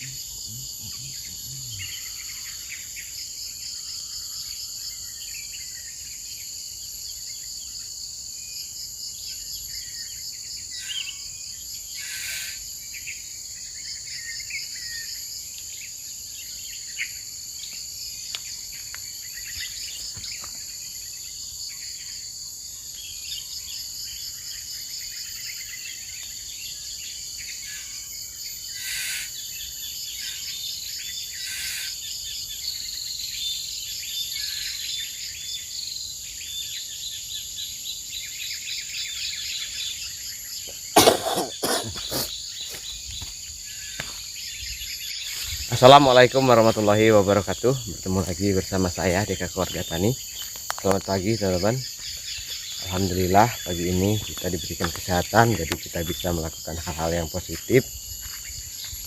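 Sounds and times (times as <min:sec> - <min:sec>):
birds chirping and calling: 0:00.0 - 0:05.9, 0:38.2 - 0:59.0
insects buzzing: 0:00.0 - 0:59.0.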